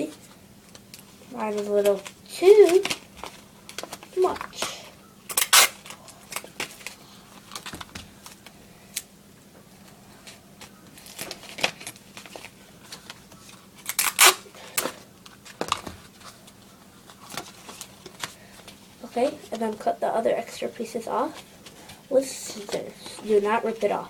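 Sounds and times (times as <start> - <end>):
paper rustling: 14.8 - 19.8.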